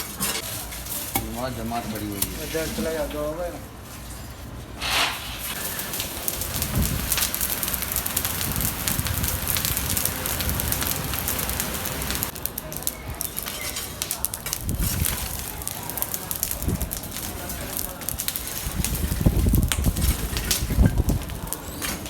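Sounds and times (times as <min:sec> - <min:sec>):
fire hissing: 0:04.7 - 0:22.0
fire crackling and popping: 0:04.8 - 0:22.0.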